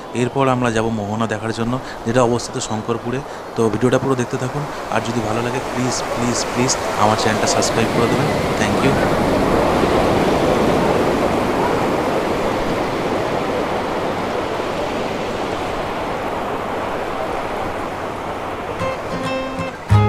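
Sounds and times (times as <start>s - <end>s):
sea surf washing onto beach: 0.0s - 20.0s.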